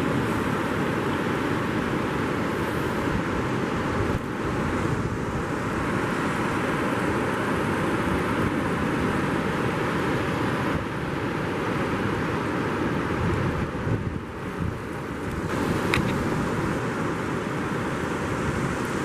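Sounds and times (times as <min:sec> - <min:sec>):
surf on a beach: 0:00.0 - 0:19.0
wind buffeting microphone: 0:13.0 - 0:19.0.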